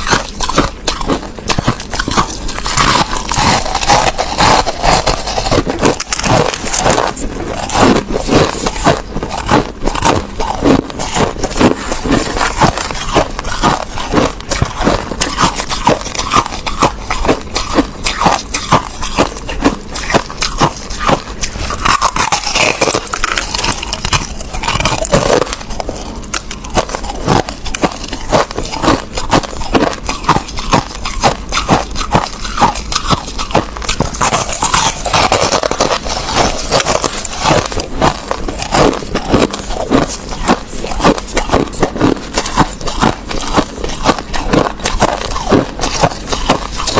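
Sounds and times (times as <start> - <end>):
chewing crushed ice: 0.0 - 46.9.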